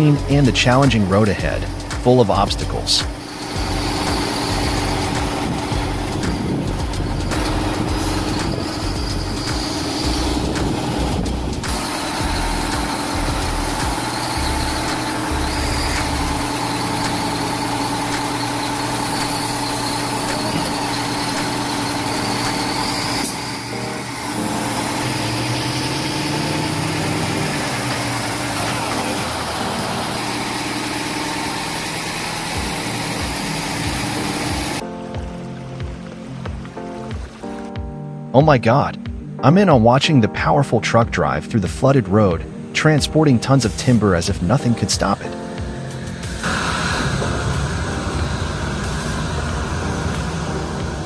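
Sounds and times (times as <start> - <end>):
heavy truck engine under load: 0.2 - 34.8.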